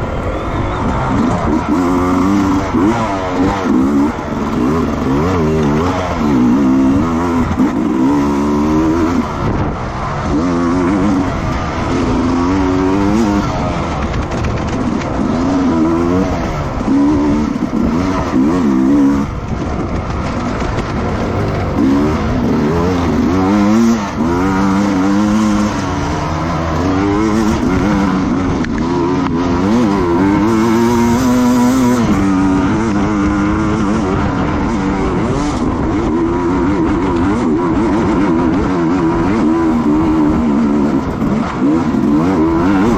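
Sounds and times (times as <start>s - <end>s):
racing motorcycle engines revving: 0.0s - 42.9s.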